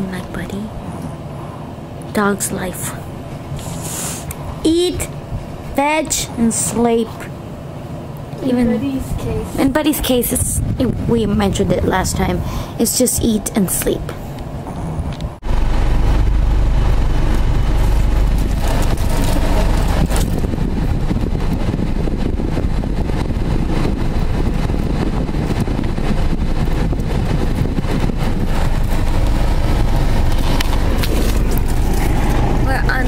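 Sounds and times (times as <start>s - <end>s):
car driving on road: 14.0s - 33.0s.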